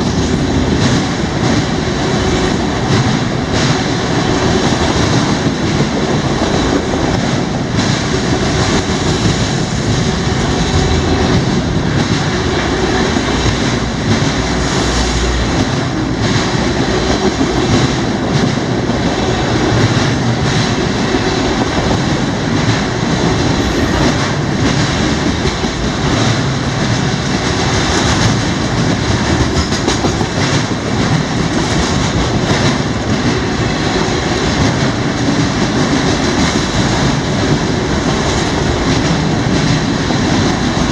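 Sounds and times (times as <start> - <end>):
freight train rumbling past: 23.4 - 34.3.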